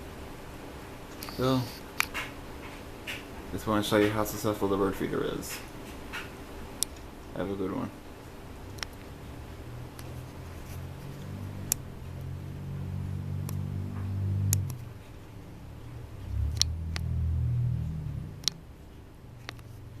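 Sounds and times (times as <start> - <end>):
vehicles passing on street: 8.5 - 20.0
sharp clicks and taps: 8.8 - 9.1.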